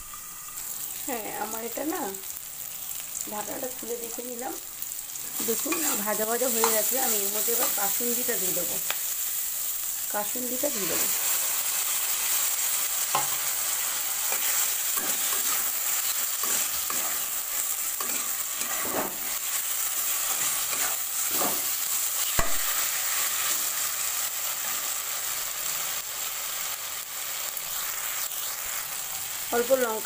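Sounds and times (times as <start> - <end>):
vegetable slices sizzling in oil: 0.0 - 30.0
spatula scraping a pan: 13.0 - 21.8.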